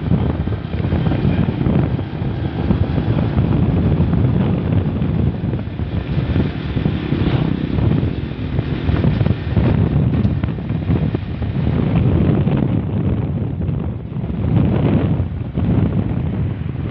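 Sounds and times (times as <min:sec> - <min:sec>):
vehicle rumbling along road: 0:00.0 - 0:16.9
wind buffeting microphone: 0:00.0 - 0:16.9.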